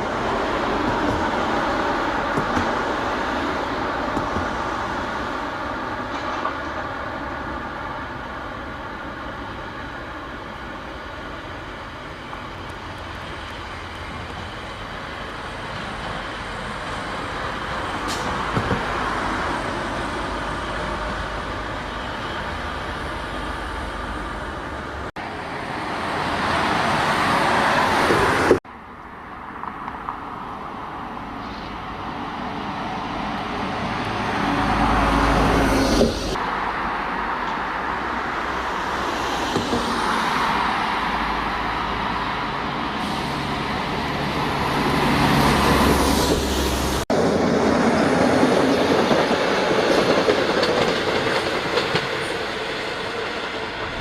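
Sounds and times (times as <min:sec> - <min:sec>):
heavy vehicle engines passing: 0:29.7 - 0:54.0.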